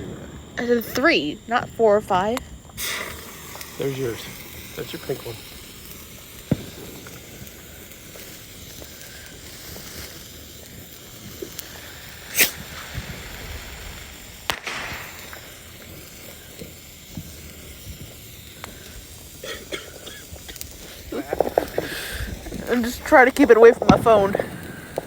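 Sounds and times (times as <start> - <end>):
faint steady hiss: 0.0 - 25.0
firework pops: 0.0 - 25.0.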